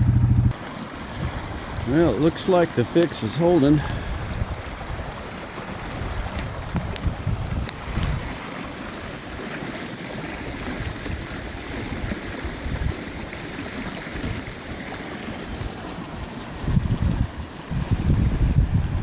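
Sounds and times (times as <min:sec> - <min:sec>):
low rumbles: 0:00.0 - 0:00.6
rushing running water: 0:00.0 - 0:19.0.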